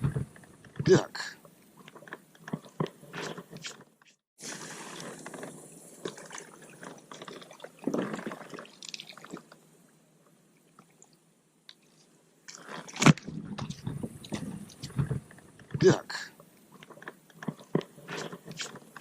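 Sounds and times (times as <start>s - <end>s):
wet splashing and squelching: 4.4s - 9.6s.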